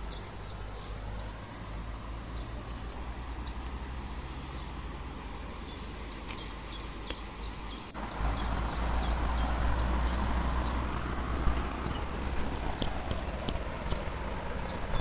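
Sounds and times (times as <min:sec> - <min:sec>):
songbird singing high notes: 0:00.0 - 0:01.2, 0:04.5 - 0:10.9.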